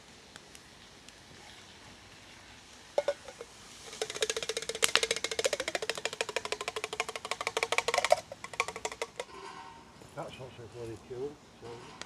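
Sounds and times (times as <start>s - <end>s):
utensil clattering in metal pot: 3.0s - 9.4s.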